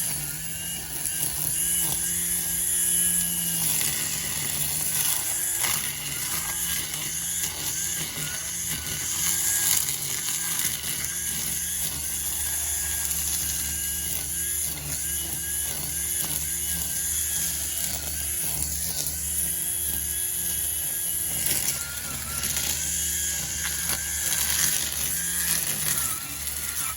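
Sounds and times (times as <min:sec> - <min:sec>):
string trimmer cutting grass: 0:00.0 - 0:26.9.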